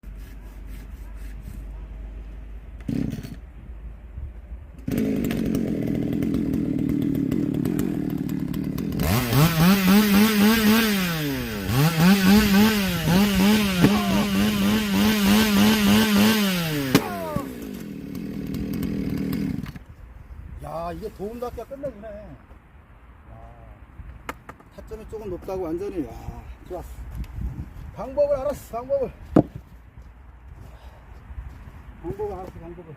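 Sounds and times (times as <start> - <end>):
chainsaw engine idling and revving: 2.8 - 3.4, 4.8 - 19.8.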